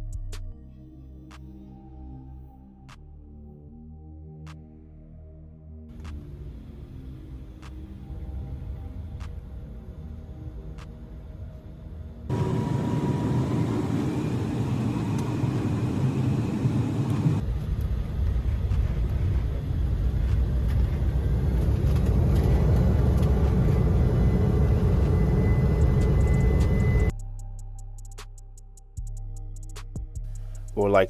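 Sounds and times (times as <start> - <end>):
faint engine whine: 6.3 - 27.1
jet engine rumble in cabin: 12.3 - 27.1.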